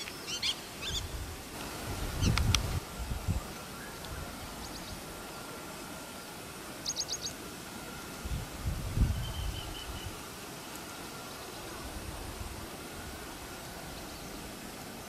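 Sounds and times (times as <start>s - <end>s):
bird chirping: 0.0s - 1.1s, 3.4s - 5.5s, 6.8s - 7.4s
faint outdoor background: 0.0s - 15.0s.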